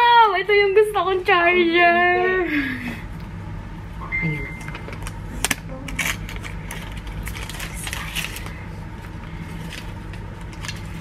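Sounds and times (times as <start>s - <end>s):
steady low hum: 0.0s - 11.0s
packaging crinkling: 4.8s - 11.0s.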